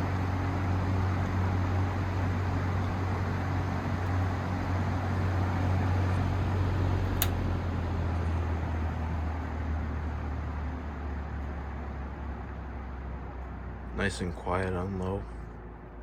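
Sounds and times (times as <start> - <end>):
box fan running: 0.0 - 16.0
fan switch click: 7.0 - 7.6.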